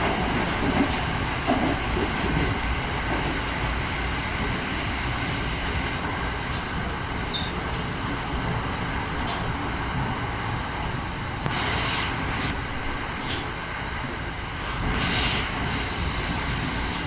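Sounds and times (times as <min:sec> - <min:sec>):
train rumbling on rails: 0:00.0 - 0:17.0
brief high hiss: 0:11.5 - 0:13.5.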